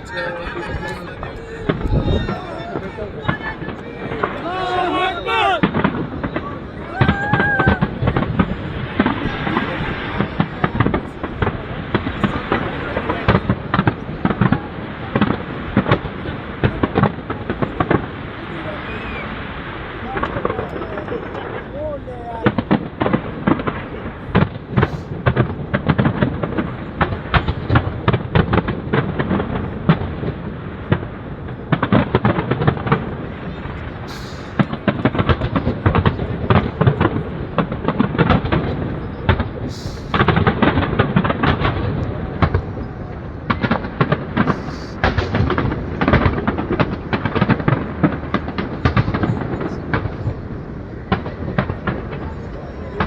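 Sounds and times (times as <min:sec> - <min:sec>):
low rumbling boom: 0:00.0 - 0:18.7
fireworks bangs and crackles: 0:00.0 - 0:53.0.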